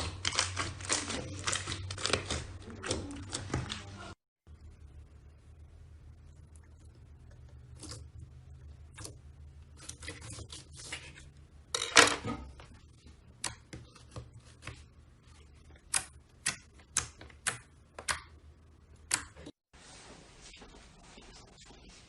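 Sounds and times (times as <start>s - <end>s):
crackling slime squelch: 0.0s - 4.2s.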